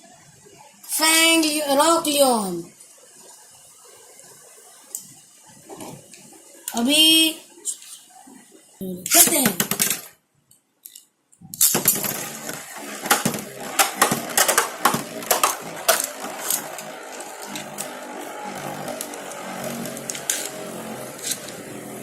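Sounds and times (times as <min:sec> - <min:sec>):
spinning tops whirring: 0:11.6 - 0:22.0
metal tops clashing clicks: 0:13.0 - 0:17.9.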